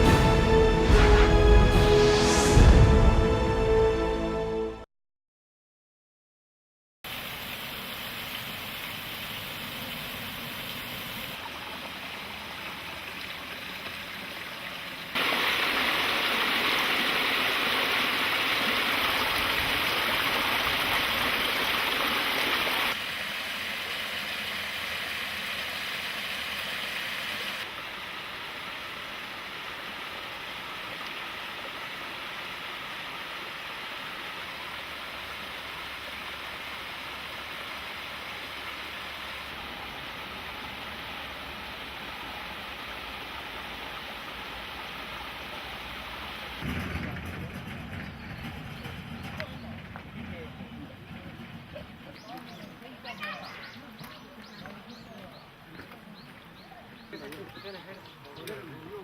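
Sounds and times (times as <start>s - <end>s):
stream rushing over rock: 7.1s - 46.7s.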